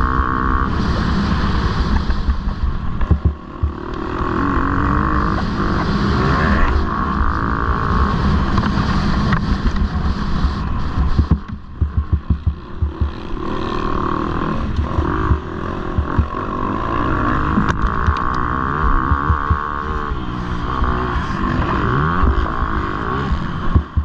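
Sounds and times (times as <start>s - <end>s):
motocross bike engines revving: 0.0s - 24.0s.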